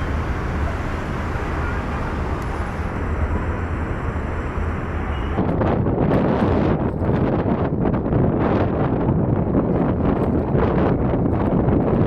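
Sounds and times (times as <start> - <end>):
engine and traffic rumble: 0.0 - 12.0
wind buffeting microphone: 0.0 - 12.0.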